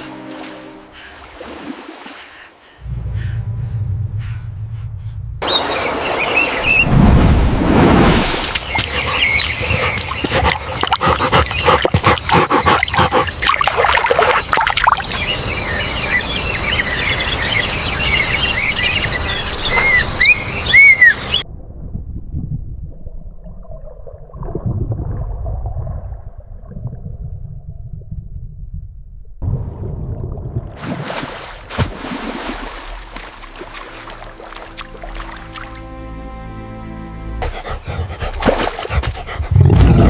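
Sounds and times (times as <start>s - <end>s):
birds chirping: 5.4s - 6.9s, 8.6s - 21.4s.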